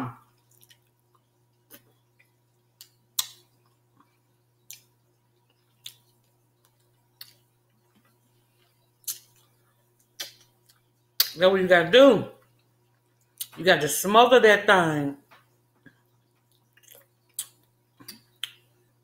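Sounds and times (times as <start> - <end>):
person chewing: 0.4 - 11.3, 15.8 - 18.6
mouth smacks and clicks: 0.5 - 11.4, 15.9 - 18.6.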